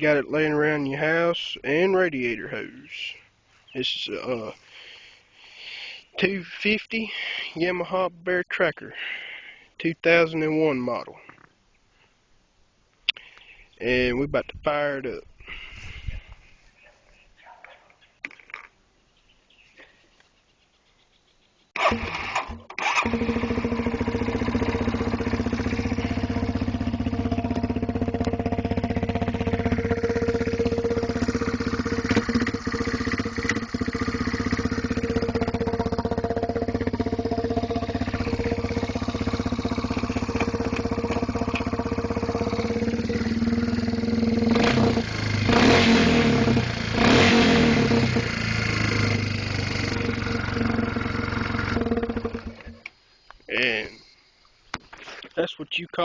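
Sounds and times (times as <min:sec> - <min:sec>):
atv engine idling and revving: 0:21.8 - 0:52.9.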